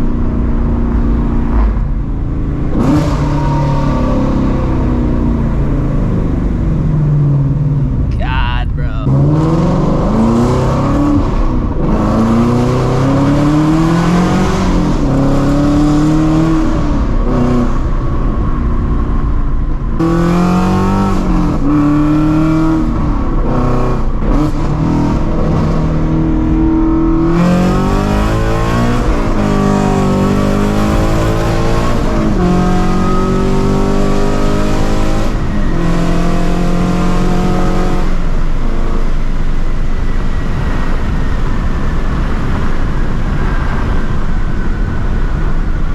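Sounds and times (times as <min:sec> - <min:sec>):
car engine accelerating hard: 0:09.1 - 0:45.7.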